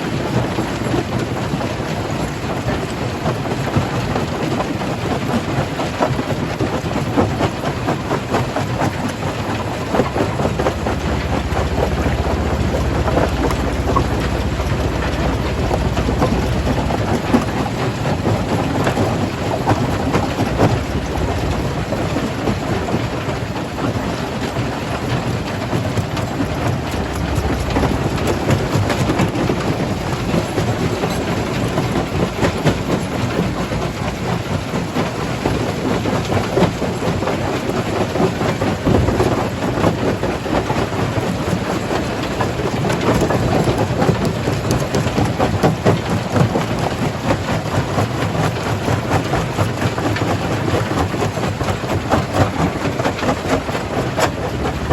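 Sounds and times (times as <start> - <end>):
stone crusher rumbling: 8.8 - 33.4.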